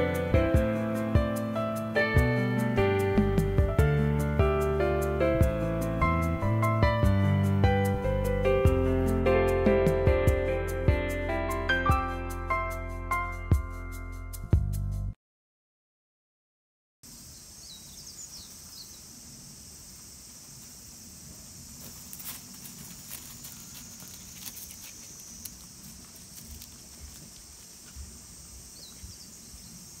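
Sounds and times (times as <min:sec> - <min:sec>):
insects droning: 0:17.0 - 0:30.0
bird chirps: 0:17.3 - 0:19.1.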